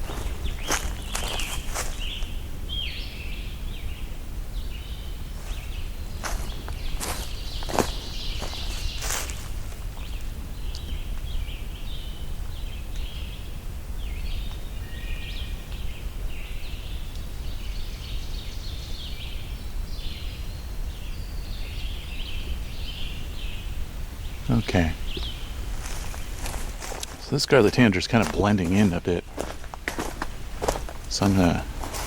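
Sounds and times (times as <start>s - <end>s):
bird singing burry phrases: 0.0s - 3.8s, 6.2s - 13.4s, 21.0s - 29.6s, 30.6s - 32.0s
other birds singing: 0.0s - 32.0s.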